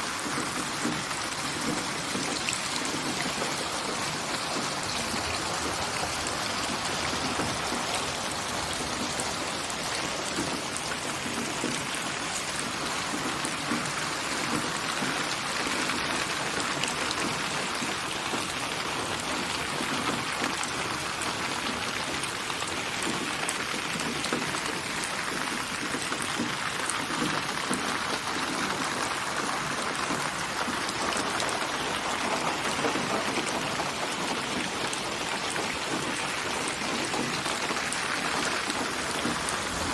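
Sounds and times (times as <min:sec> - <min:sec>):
steady rain hiss: 0:00.0 - 0:39.9
water drips ticking: 0:00.2 - 0:21.4, 0:22.1 - 0:39.9.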